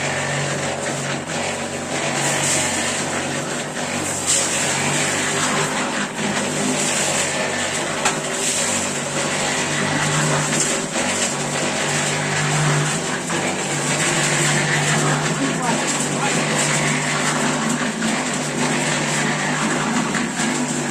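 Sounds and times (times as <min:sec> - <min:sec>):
engine running steadily: 0:00.0 - 0:20.9.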